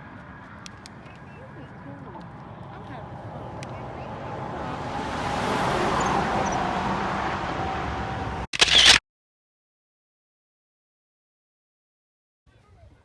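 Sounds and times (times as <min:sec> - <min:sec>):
road vehicle noise: 0:00.0 - 0:09.0.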